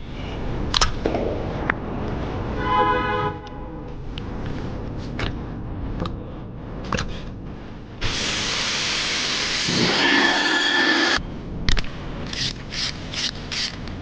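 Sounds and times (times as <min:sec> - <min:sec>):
loud steady hiss of air: 0:08.0 - 0:11.2.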